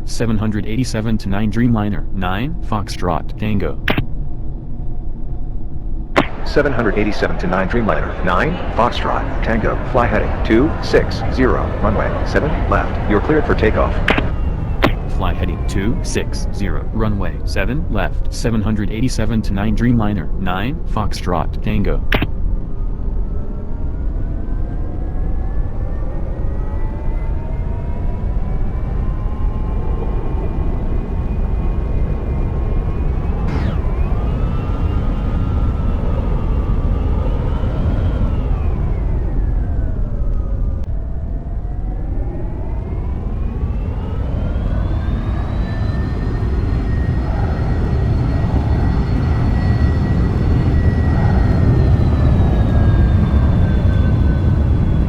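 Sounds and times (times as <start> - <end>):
whining fan tones: 0.0 - 55.0
jet engines roaring: 6.2 - 22.3, 28.1 - 40.6, 41.4 - 55.0.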